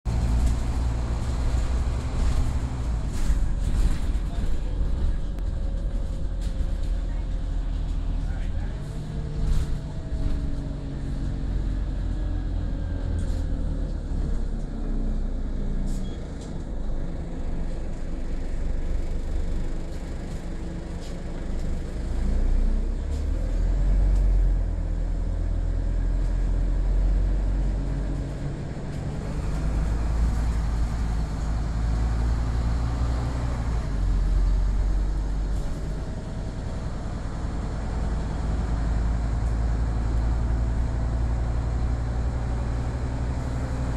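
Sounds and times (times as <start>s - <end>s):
bus engine running: 0.0s - 43.9s.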